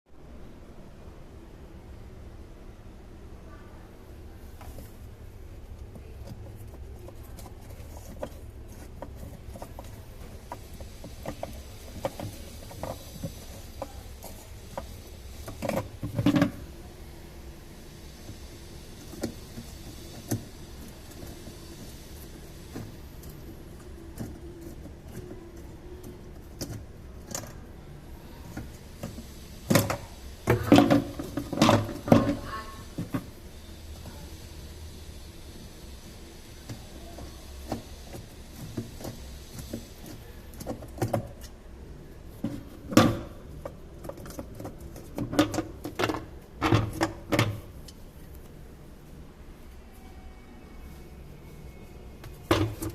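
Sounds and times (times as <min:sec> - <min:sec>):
steady low hum: 0:00.1 - 0:52.9.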